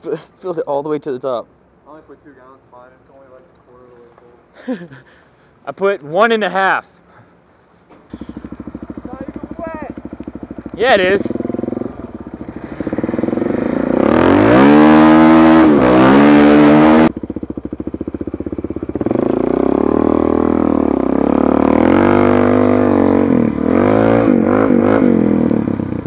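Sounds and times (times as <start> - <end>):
motorcycle engine revving: 8.1 - 26.0.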